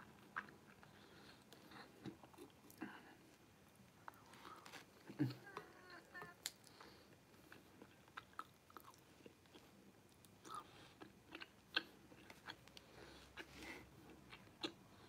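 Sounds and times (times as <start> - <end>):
chewing noodles: 4.1 - 15.0.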